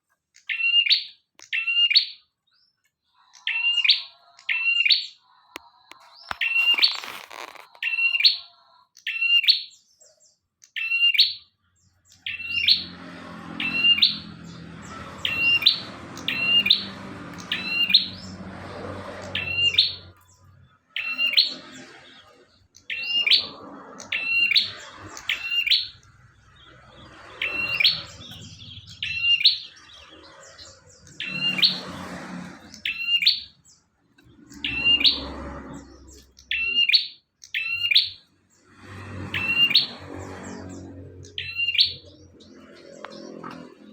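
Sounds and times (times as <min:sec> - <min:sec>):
bird chirping sharply: 0:06.0 - 0:10.2, 0:10.8 - 0:43.9.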